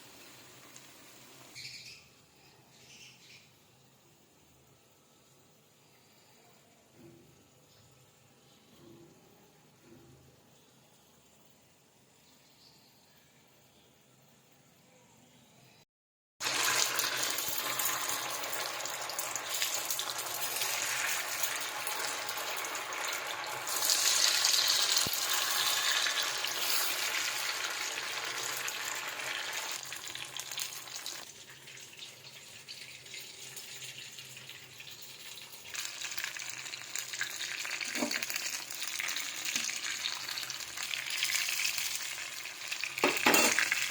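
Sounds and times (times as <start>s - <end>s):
food sizzling in hot oil: 0.0s - 1.8s, 16.4s - 43.9s.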